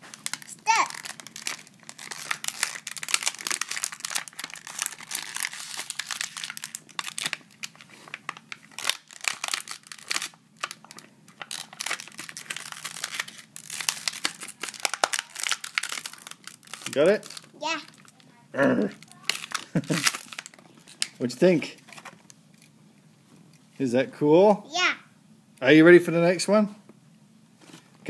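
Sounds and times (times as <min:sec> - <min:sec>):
plastic packaging crinkling and tearing: 0:00.0 - 0:18.3, 0:18.9 - 0:22.7.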